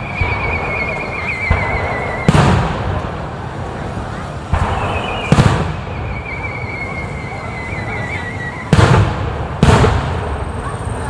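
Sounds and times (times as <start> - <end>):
high wavering whistle: 0.0 - 2.6, 4.6 - 8.8
firework shells booming: 0.0 - 11.0.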